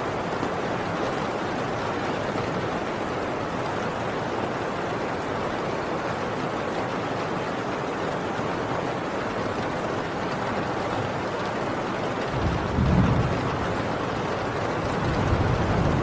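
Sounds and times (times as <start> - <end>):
heavy rain on a tin roof: 0.0 - 16.0
distant thunder rumble: 12.2 - 16.0.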